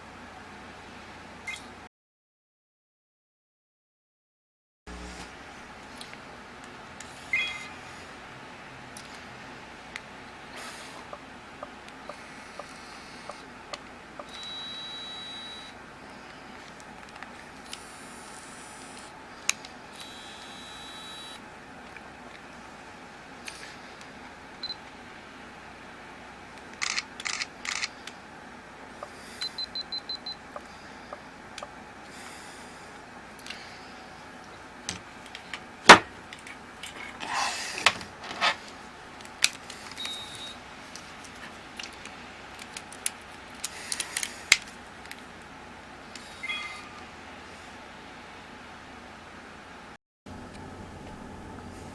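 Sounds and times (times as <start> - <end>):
camera electronic beeps: 1.5 - 1.7, 7.3 - 7.8, 14.2 - 15.7, 20.0 - 21.4, 29.4 - 30.4, 40.0 - 40.6
camera clicks: 26.8 - 27.9.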